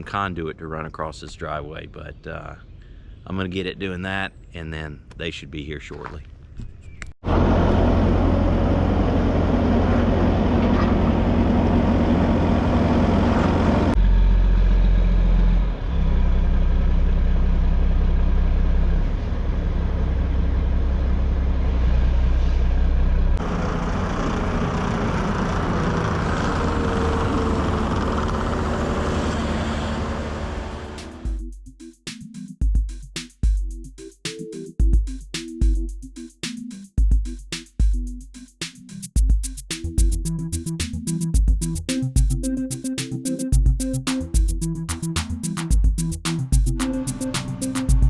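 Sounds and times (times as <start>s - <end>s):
heavy machinery engine rumbling: 7.2s - 31.4s.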